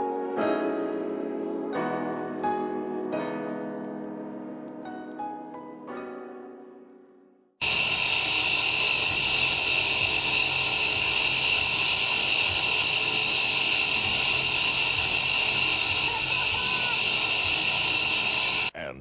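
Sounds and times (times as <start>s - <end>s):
helicopter turbine whine: 7.6s - 18.7s.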